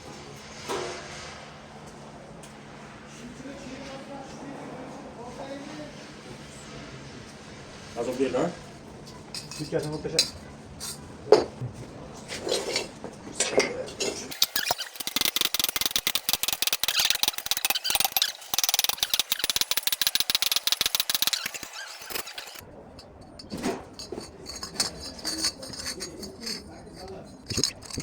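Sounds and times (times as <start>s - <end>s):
welding arc crackling: 14.3s - 22.6s
metal clinks: 14.3s - 28.0s.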